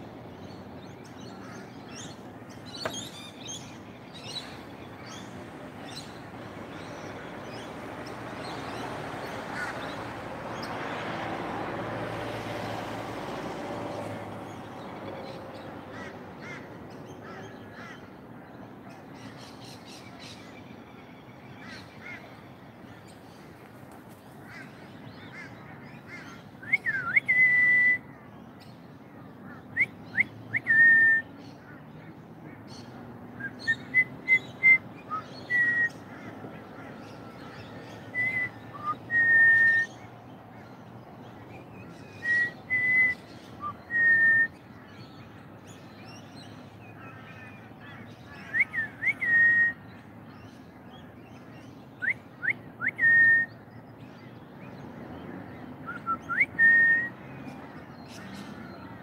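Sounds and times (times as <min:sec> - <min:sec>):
bird whistling: 0:26.6 - 0:28.0, 0:29.8 - 0:31.3, 0:33.4 - 0:36.0, 0:38.1 - 0:39.9, 0:42.2 - 0:44.6, 0:48.5 - 0:49.8, 0:52.0 - 0:53.5, 0:55.9 - 0:57.1.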